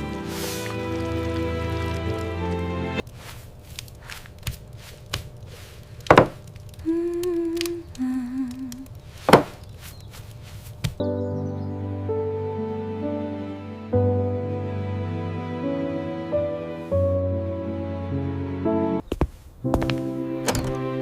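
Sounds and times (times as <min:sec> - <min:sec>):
person humming: 0:06.8 - 0:08.9.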